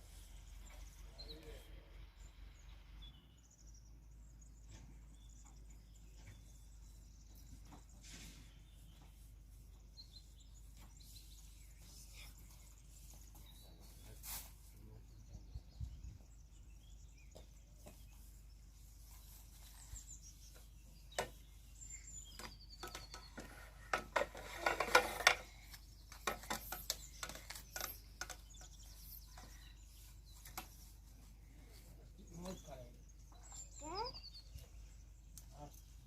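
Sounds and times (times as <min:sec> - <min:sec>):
scattered clicks and knocks: 0:22.4 - 0:29.5.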